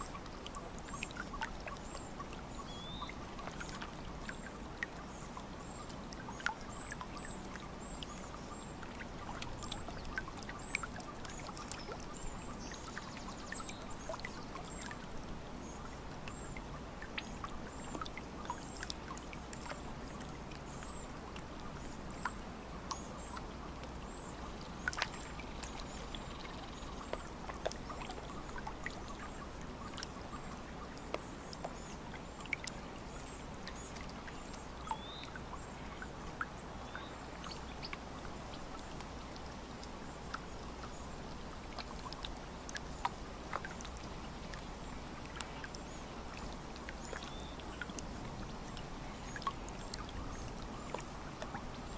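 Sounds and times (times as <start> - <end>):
small splashes and drips: 0.0 - 51.9
water lapping at shore: 0.0 - 51.9
faint bird chirps: 2.6 - 3.7, 25.1 - 27.2, 34.8 - 36.0.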